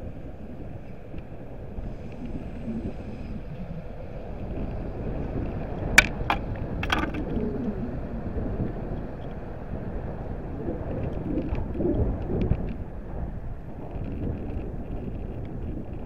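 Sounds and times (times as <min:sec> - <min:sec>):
sharp wheel clacks: 0:06.0 - 0:07.2.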